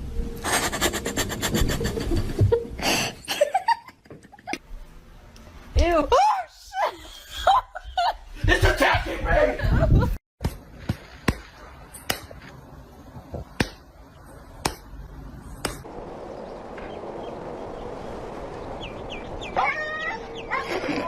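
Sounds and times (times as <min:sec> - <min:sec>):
sharp knocks: 0:14.6 - 0:14.9, 0:15.6 - 0:15.9.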